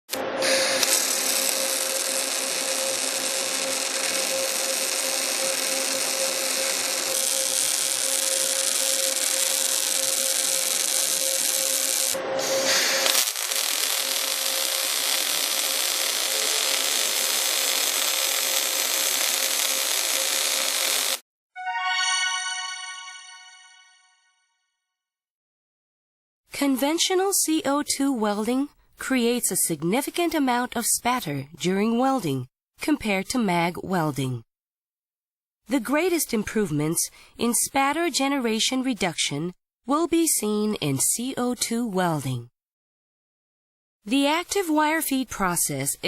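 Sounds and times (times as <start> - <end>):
welding arc hissing: 0.1 - 21.2.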